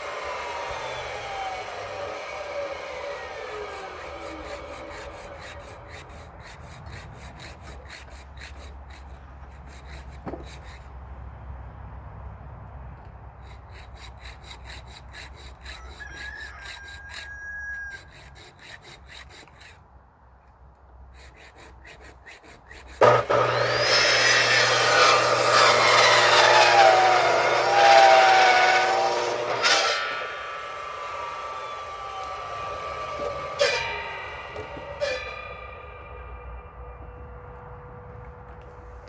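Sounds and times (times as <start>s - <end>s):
electric saw cutting log: 0.0s - 10.8s, 13.4s - 19.7s, 21.2s - 36.8s
hand saw scraping: 0.0s - 11.0s, 13.4s - 19.9s, 21.1s - 36.7s.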